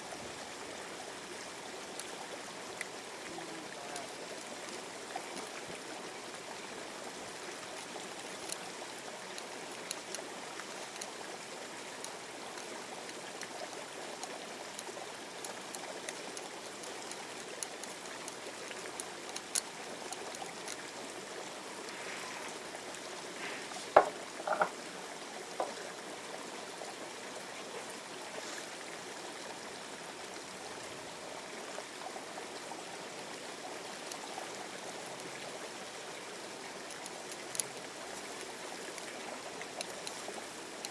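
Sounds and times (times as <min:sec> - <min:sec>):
river water running: 0:00.0 - 0:40.9
sharp knocks: 0:24.0 - 0:24.8.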